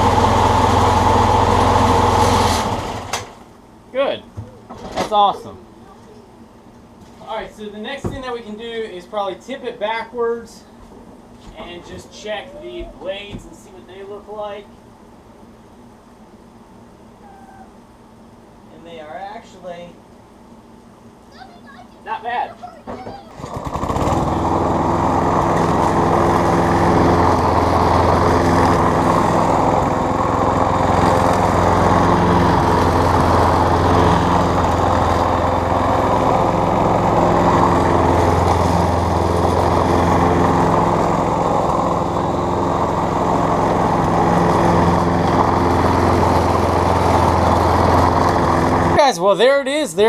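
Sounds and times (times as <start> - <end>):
lawn mower engine running: 0.0 - 3.6, 23.3 - 50.0.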